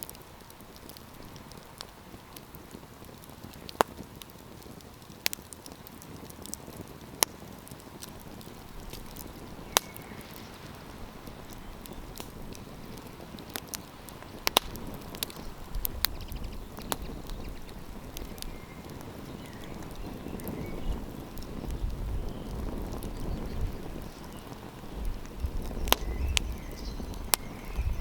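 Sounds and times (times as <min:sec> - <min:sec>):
campfire crackling and popping: 0:00.0 - 0:28.0
low rush of flame: 0:00.0 - 0:28.0
wind: 0:00.0 - 0:28.0.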